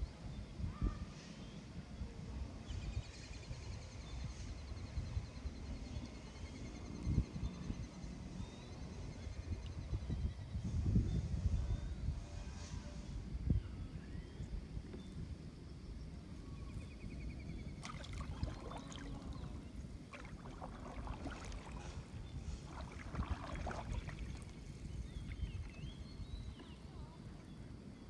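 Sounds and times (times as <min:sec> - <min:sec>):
steady low rumble: 0:15.9 - 0:27.4
paddles splashing in water: 0:17.6 - 0:26.9.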